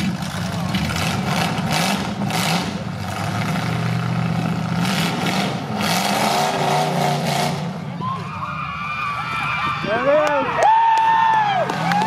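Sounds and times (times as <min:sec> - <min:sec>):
car engines revving loudly: 0:00.0 - 0:08.3.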